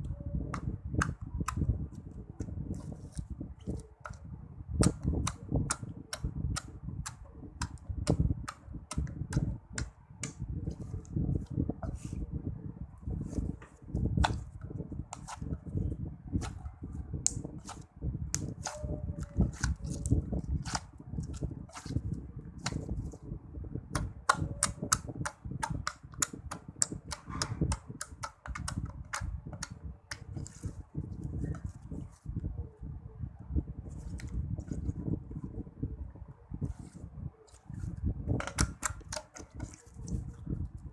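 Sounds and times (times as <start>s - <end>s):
slime squishing: 17.2s - 23.2s.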